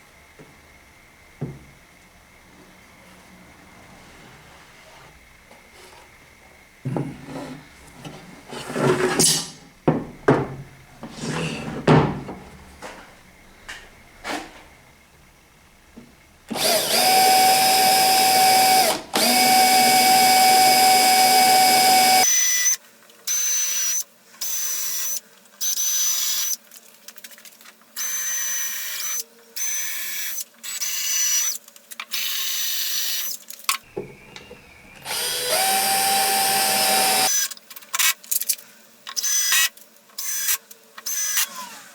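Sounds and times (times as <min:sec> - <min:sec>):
knocks and clatter of handling: 0:06.9 - 0:13.2
electric drill running: 0:16.5 - 0:22.6, 0:35.0 - 0:37.5, 0:40.2 - 0:41.9.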